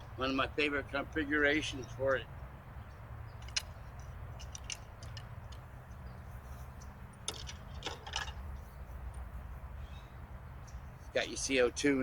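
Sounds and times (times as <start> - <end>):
air revolver clicks and rattles: 4.4 - 5.6.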